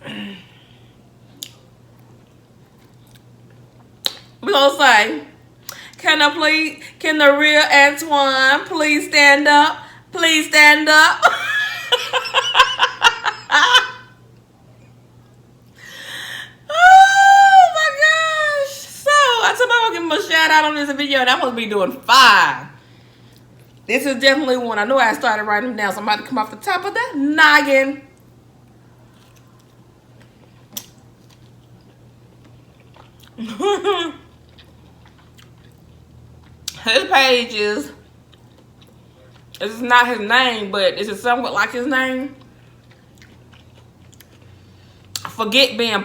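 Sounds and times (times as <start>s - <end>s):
woman laughing: 11.2s - 14.2s, 33.4s - 34.3s
person chewing food: 28.7s - 33.4s, 34.2s - 36.8s, 38.0s - 39.6s, 42.4s - 45.3s.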